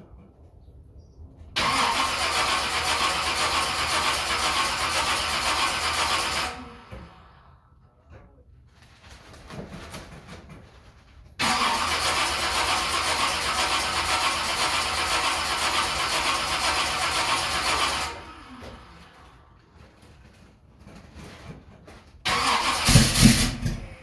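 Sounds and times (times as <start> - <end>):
car engine running: 11.4 - 19.4, 22.3 - 24.0.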